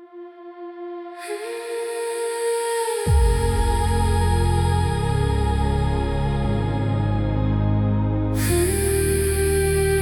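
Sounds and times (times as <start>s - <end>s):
deep bass swoop: 3.1s - 10.0s.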